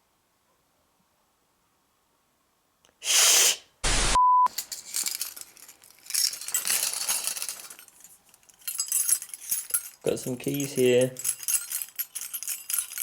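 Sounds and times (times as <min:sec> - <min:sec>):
static burst: 0:03.8 - 0:04.2
electronic beep: 0:03.9 - 0:04.5
metal keys jangling: 0:04.5 - 0:13.0.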